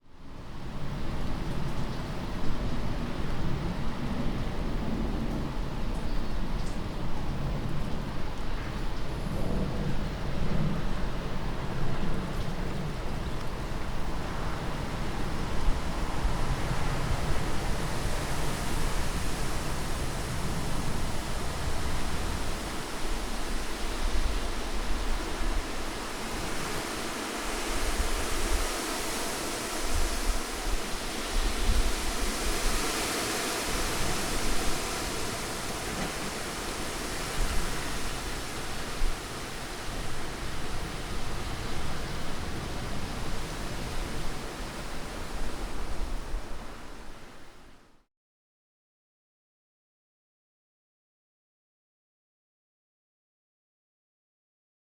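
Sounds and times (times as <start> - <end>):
heavy rain hissing: 8.2 - 47.8.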